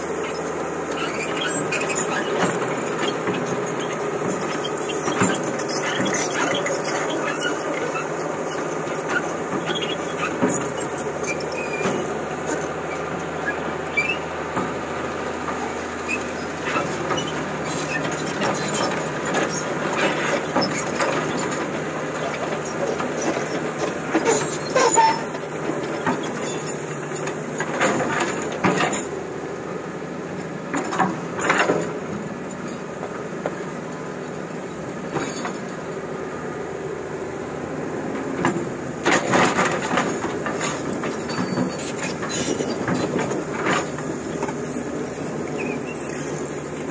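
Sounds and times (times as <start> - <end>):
excavator diesel engine: 0.0 - 46.9.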